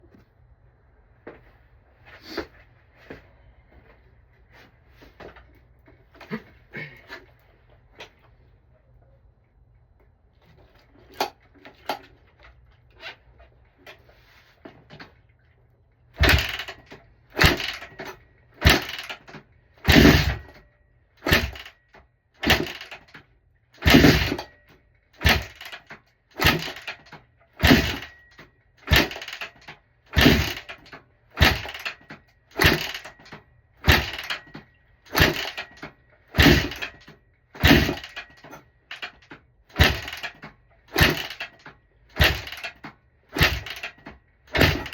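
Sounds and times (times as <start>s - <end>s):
motorcycle kick-start turning over: 16.2s - 44.9s.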